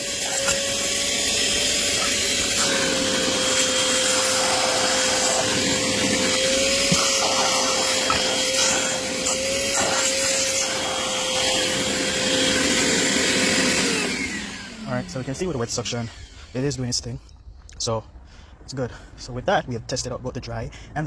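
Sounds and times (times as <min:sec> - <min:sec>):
vacuum sucking water: 0:00.0 - 0:16.8
wet vacuum whining: 0:00.0 - 0:17.3.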